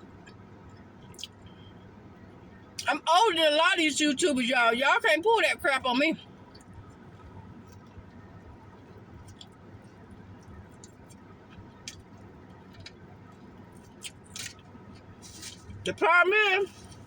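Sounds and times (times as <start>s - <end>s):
low room hum: 0.0s - 17.0s
mouth clicks and smacks: 1.0s - 1.5s, 9.2s - 9.6s, 13.8s - 14.6s.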